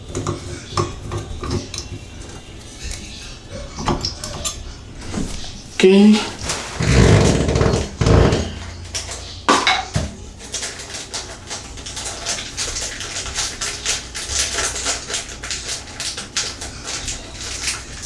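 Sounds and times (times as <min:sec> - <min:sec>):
heavy knocks: 0:06.3 - 0:10.2
metal tools clinking and rattling: 0:06.3 - 0:17.8.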